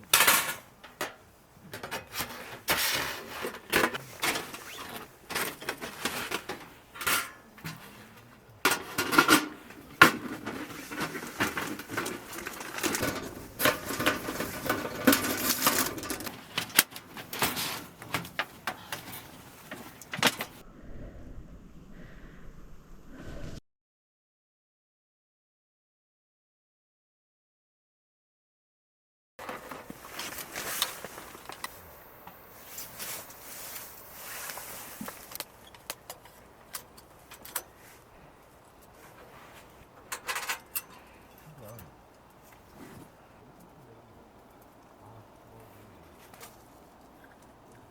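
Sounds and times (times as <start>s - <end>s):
rustling: 1.9s - 23.6s, 29.4s - 47.9s.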